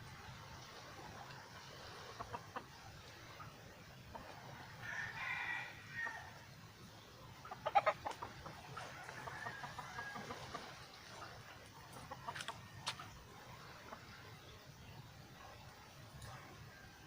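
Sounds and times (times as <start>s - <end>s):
chickens clucking: 0.5s - 5.0s, 6.0s - 16.6s.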